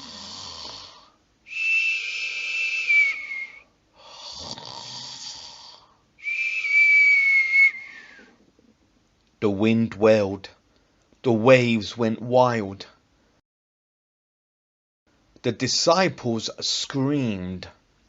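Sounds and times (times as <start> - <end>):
cartoon snoring with whistle: 0.0 - 1.1, 1.7 - 5.9.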